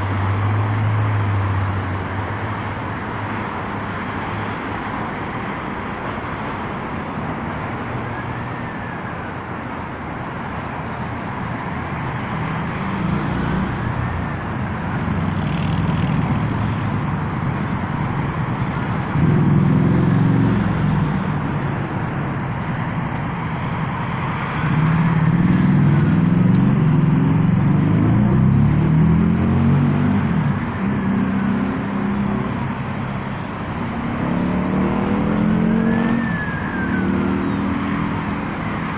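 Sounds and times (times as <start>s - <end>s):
road traffic passing: 0.0s - 38.9s
distant emergency siren wailing: 8.0s - 9.9s, 33.4s - 38.9s.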